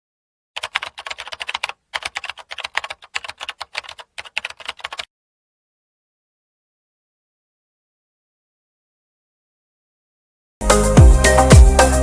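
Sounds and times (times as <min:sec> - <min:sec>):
rapid keyboard typing: 0:00.6 - 0:05.1.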